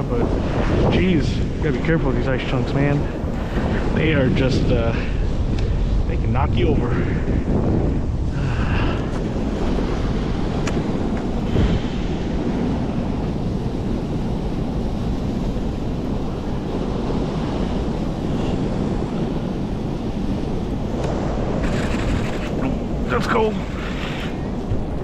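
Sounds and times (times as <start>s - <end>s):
wind buffeting microphone: 0.0s - 25.0s
river current rushing: 8.3s - 25.0s.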